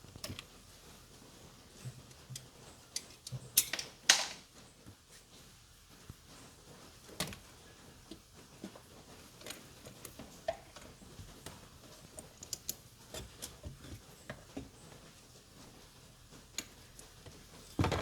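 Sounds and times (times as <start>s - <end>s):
tools clicking and tapping: 1.8s - 4.4s.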